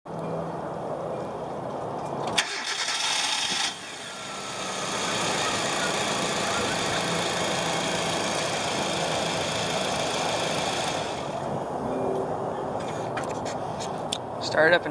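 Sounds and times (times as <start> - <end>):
car engine running: 2.4 - 11.8.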